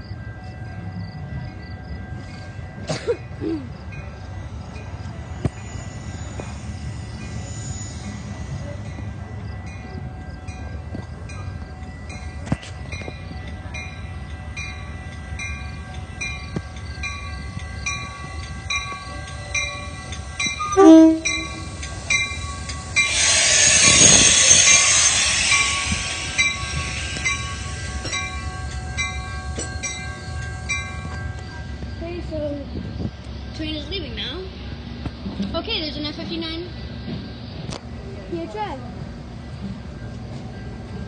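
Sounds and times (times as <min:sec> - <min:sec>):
crossing bells ringing: 0:00.0 - 0:35.0, 0:35.6 - 0:41.0
train horn blast: 0:20.7 - 0:21.8
loud hiss of air: 0:21.6 - 0:28.3.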